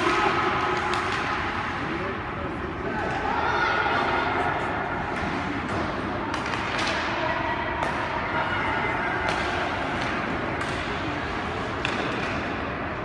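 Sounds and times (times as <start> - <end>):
hockey stick and puck knocks: 0.0 - 1.4, 5.1 - 7.2, 9.2 - 12.8
skating and arena noise: 0.0 - 13.0.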